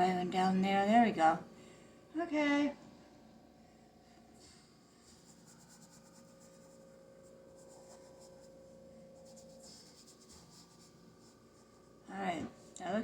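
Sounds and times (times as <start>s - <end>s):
faint steady hum: 0.0s - 13.0s
paintbrush strokes on canvas: 4.4s - 12.8s.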